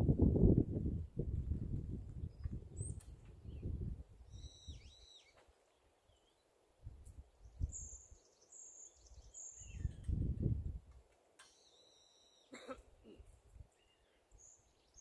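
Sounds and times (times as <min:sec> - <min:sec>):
wind rumble on microphone: 0:00.0 - 0:04.9, 0:06.8 - 0:08.2, 0:09.0 - 0:11.0
high thin bird whistles: 0:04.3 - 0:05.4.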